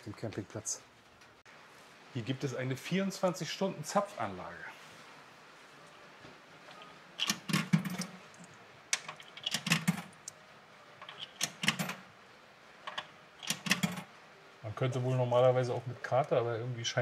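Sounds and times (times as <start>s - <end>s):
payment machine clicking and rattling: 6.7s - 8.3s, 9.0s - 10.3s, 11.0s - 12.1s, 12.8s - 14.1s.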